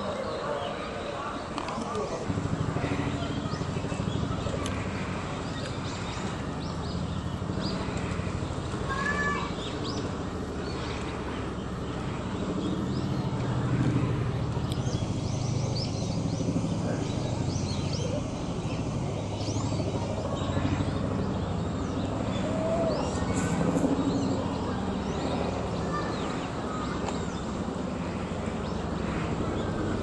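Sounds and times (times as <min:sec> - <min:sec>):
small birds chirping: 0:00.0 - 0:30.0
steady low rumble: 0:02.2 - 0:25.9.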